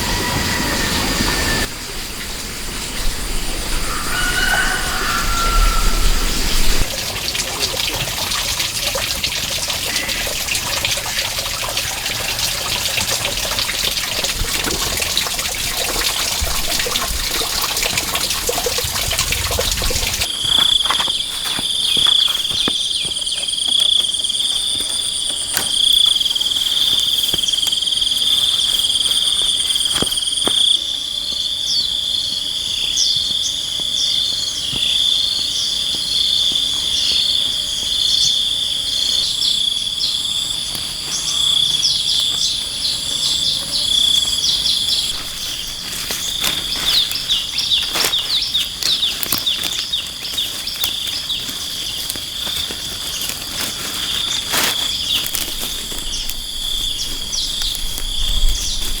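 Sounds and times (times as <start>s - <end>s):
high-pitched insect drone: 0.0s - 1.7s, 2.8s - 6.9s.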